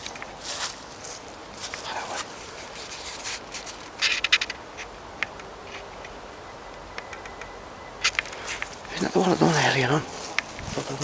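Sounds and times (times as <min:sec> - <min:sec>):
footsteps on dry leaves: 0:00.0 - 0:03.8, 0:08.4 - 0:11.0
twigs crackling: 0:00.0 - 0:06.1, 0:08.0 - 0:11.0.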